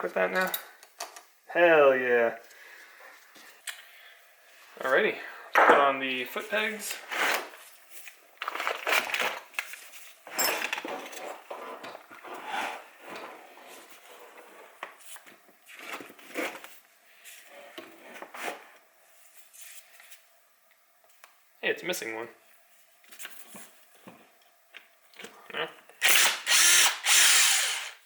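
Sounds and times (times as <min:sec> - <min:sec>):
metal parts and tools clinking: 0:10.3 - 0:11.4.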